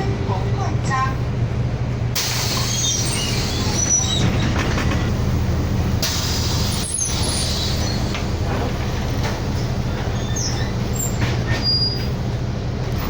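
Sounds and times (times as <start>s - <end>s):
bus engine humming: 0.0s - 13.0s
air brake hiss: 6.0s - 8.1s.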